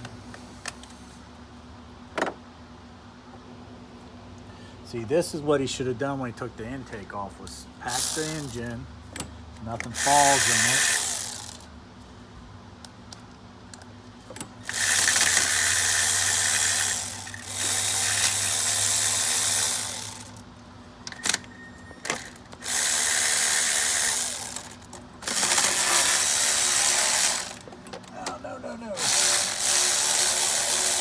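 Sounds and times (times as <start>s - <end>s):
handheld power tool running: 7.9s - 8.7s, 10.0s - 11.7s, 14.6s - 20.4s, 22.1s - 27.7s, 29.0s - 31.0s.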